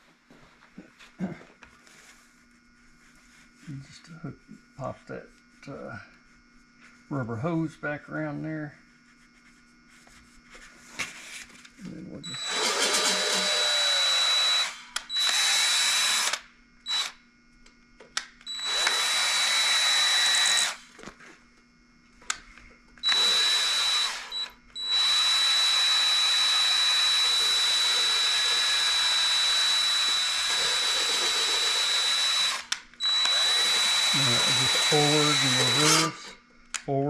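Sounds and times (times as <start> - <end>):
electric drill whining: 12.2 - 17.2, 18.4 - 21.0, 23.0 - 36.4.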